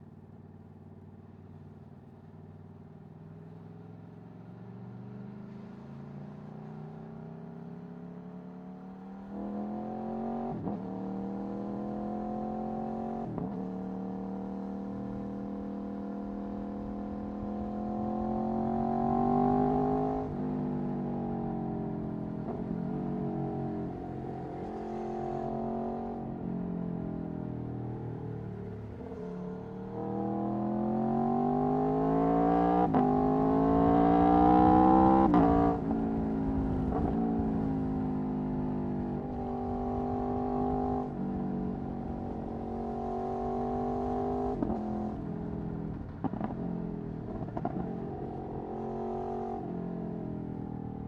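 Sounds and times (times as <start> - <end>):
motorcycle engine revving: 28.0 - 38.7.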